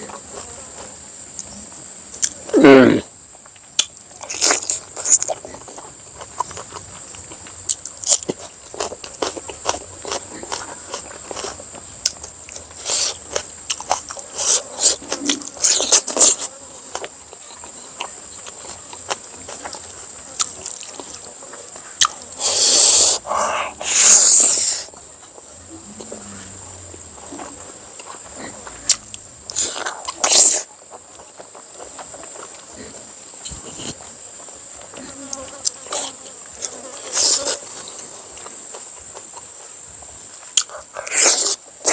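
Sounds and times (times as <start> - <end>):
chewing: 3.4 - 41.9
slurping noises: 22.0 - 24.9, 28.9 - 30.7, 33.4 - 34.0.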